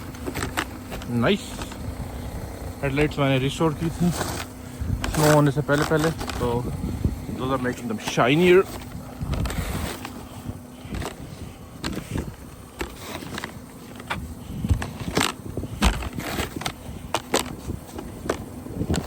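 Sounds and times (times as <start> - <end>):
broom scraping snow off car: 0.0 - 19.0
low rumble: 0.8 - 7.7.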